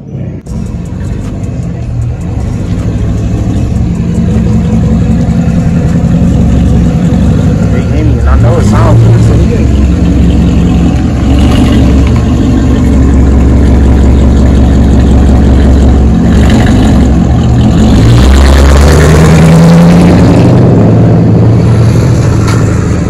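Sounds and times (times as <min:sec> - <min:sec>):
car engine revving: 0:00.4 - 0:23.0.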